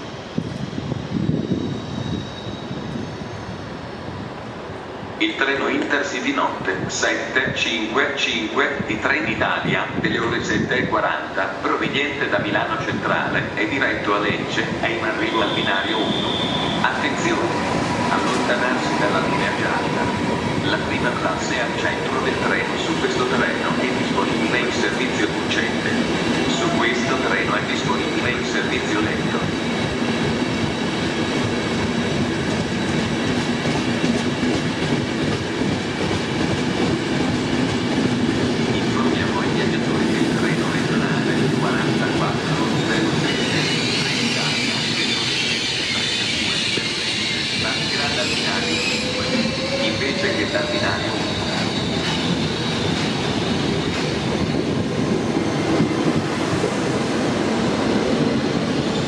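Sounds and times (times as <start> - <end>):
faint high squeal: 1.4 - 3.8
train wheels rumbling on rails: 5.2 - 59.0.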